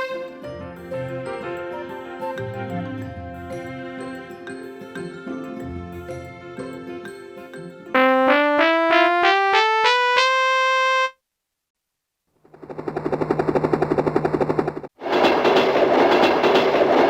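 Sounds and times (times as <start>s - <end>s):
keyboard rising note run: 8.0s - 11.1s.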